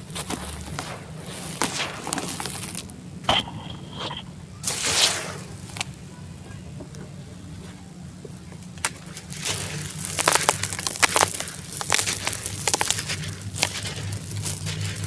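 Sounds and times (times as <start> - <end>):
cement chunk crumbling and cracking: 8.6 - 15.0.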